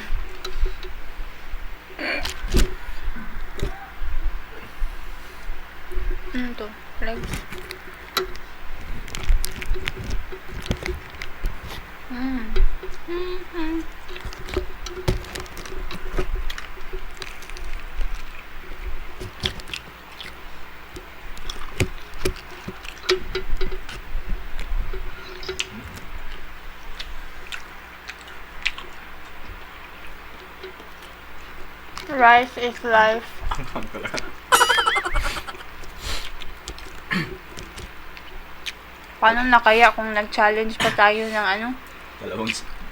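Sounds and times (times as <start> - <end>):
wet chewing and lip smacking: 7.2 - 32.1, 32.8 - 39.2
person humming: 12.1 - 14.0, 34.6 - 35.7.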